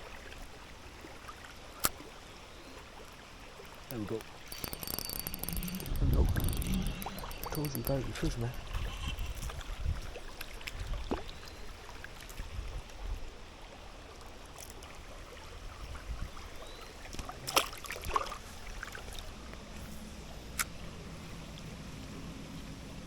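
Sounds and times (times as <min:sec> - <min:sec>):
river water flowing: 0:00.0 - 0:23.0
low rumble on microphone: 0:04.7 - 0:11.1.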